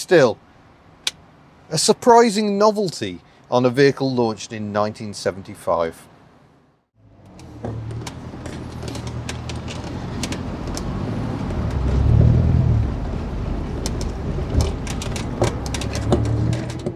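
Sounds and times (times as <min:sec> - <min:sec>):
tyres crackling on wet tarmac: 0:07.4 - 0:16.9.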